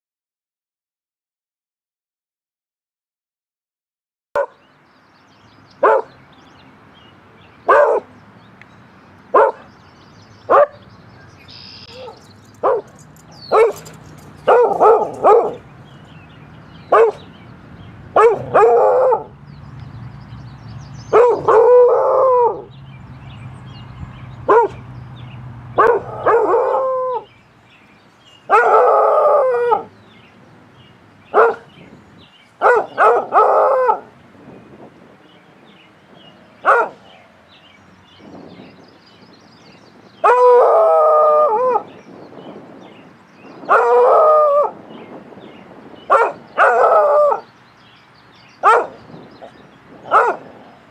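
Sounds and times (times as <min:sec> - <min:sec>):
dog barking and howling: 0:05.8 - 0:06.1, 0:07.7 - 0:08.1, 0:09.3 - 0:09.6, 0:11.8 - 0:15.7, 0:16.9 - 0:17.3, 0:18.2 - 0:19.3, 0:21.1 - 0:22.7, 0:24.5 - 0:24.8, 0:25.8 - 0:27.3, 0:28.5 - 0:29.9, 0:31.3 - 0:31.7, 0:32.6 - 0:34.1, 0:36.6 - 0:37.2, 0:40.2 - 0:42.0, 0:43.6 - 0:44.8, 0:46.1 - 0:47.5, 0:48.6 - 0:49.0, 0:50.1 - 0:50.6.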